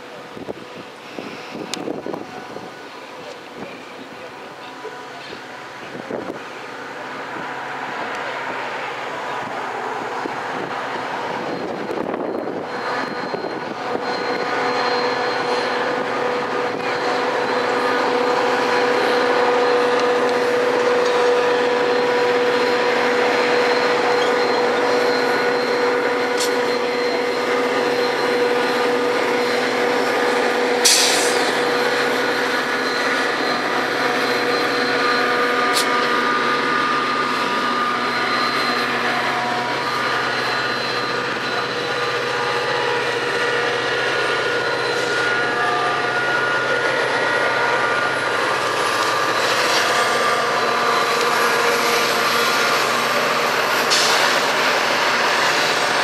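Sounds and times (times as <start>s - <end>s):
train running past: 0.0s - 56.0s.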